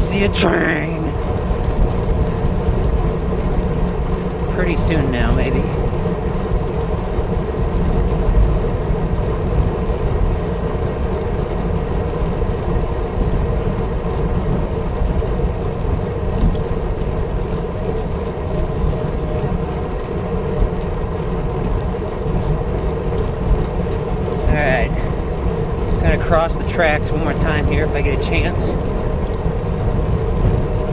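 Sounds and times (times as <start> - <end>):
bicycle road noise: 0.0 - 30.9
wind buffeting microphone: 0.0 - 30.9.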